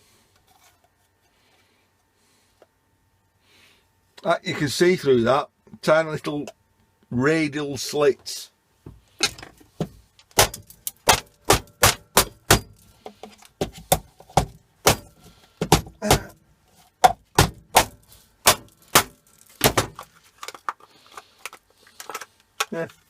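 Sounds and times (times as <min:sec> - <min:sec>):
plastic parts knocking and clicking: 0:09.2 - 0:23.0.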